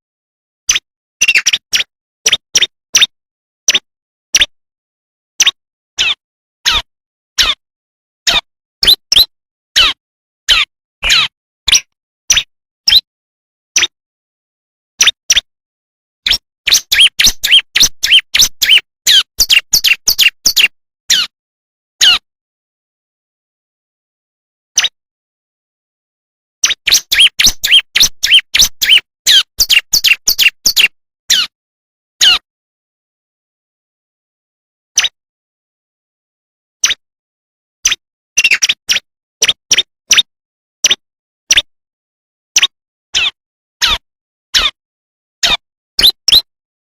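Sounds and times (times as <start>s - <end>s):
bird high sharp chirps: 0.7s - 4.5s, 5.4s - 7.6s, 8.3s - 13.1s, 15.0s - 15.5s, 16.2s - 21.3s, 22.0s - 22.2s, 24.8s - 25.0s, 26.6s - 31.5s, 32.2s - 32.4s, 35.0s - 35.2s, 37.8s - 41.7s, 42.6s - 44.0s, 44.6s - 44.8s, 45.4s - 46.5s.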